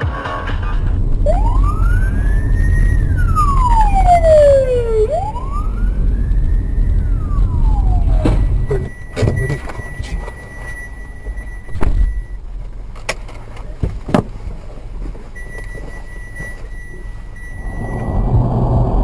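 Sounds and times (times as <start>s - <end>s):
vehicle and road rumble: 0.0s - 19.0s
emergency vehicle siren wailing: 0.6s - 12.3s, 16.8s - 19.0s.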